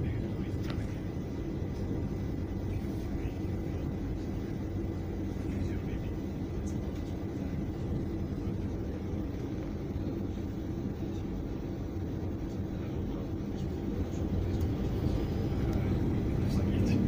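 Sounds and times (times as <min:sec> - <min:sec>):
train rumbling inside carriage: 0:00.0 - 0:17.0.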